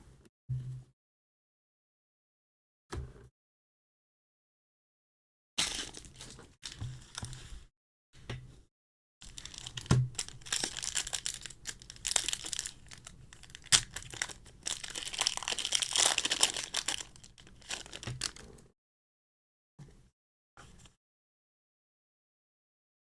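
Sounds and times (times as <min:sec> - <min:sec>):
foil wrapper tearing and crinkling: 0:05.6 - 0:07.3, 0:09.2 - 0:18.6.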